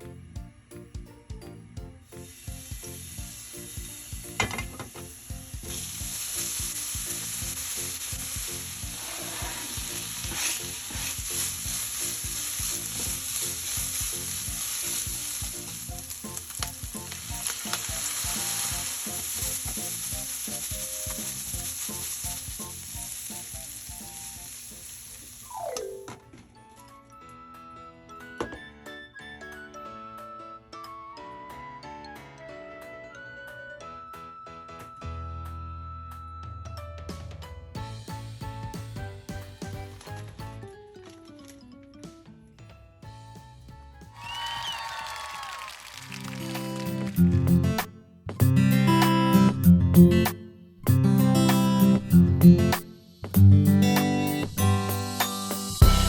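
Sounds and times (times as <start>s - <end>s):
food sizzling in a frying pan: 2.2s - 25.6s.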